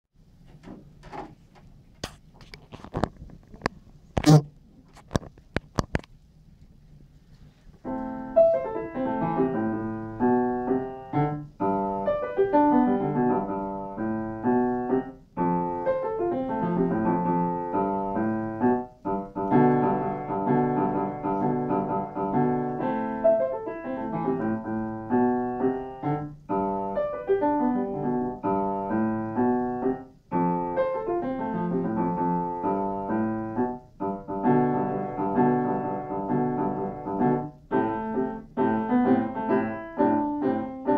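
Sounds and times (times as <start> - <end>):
solo piano piece: 7.8 - 40.9.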